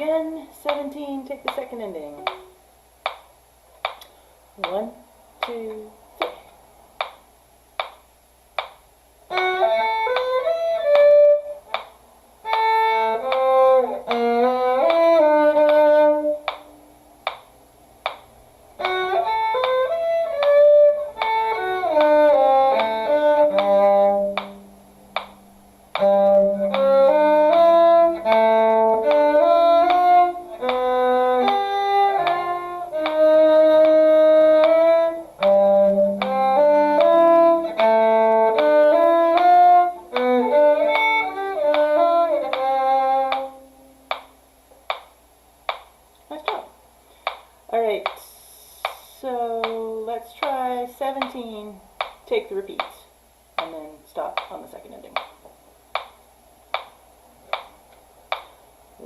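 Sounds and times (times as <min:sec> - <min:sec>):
cello line: 0:00.0 - 0:03.2, 0:09.3 - 0:17.4, 0:18.0 - 0:45.0
sharp beat clicks: 0:00.6 - 0:58.6
violin melody: 0:02.0 - 0:02.6, 0:09.3 - 0:11.8, 0:12.4 - 0:16.8, 0:18.8 - 0:25.3, 0:25.9 - 0:44.2.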